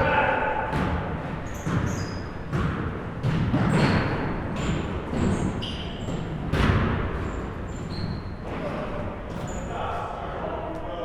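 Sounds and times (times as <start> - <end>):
basketball bouncing on wood floor: 0.7 - 5.5
sneaker squeaks: 0.7 - 9.9.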